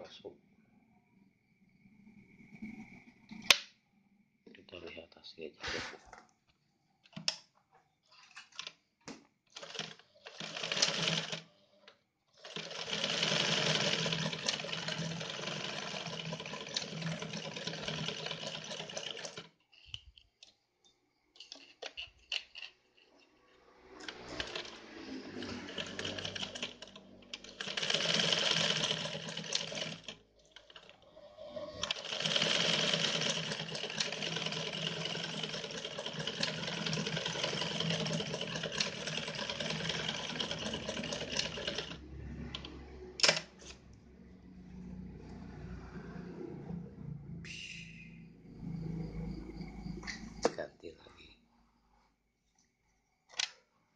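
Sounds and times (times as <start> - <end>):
sewing machine stitching: 9.5 - 20.1, 21.4 - 43.9.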